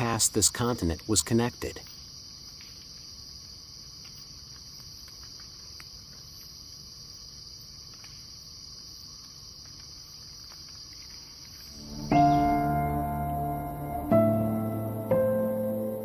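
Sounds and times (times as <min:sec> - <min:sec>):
insects trilling: 0:00.0 - 0:16.0
faint clicks: 0:04.0 - 0:06.6.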